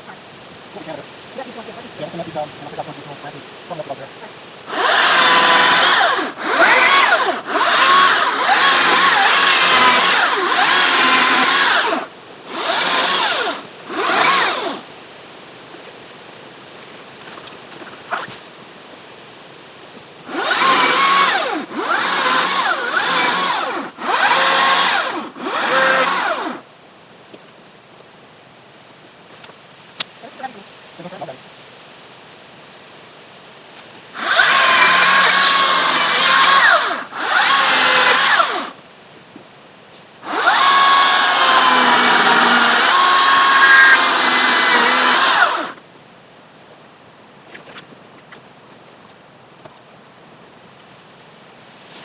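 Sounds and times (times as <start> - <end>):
chainsaw revving and cutting: 4.7 - 14.8, 20.3 - 26.6, 34.2 - 38.8, 40.2 - 45.8.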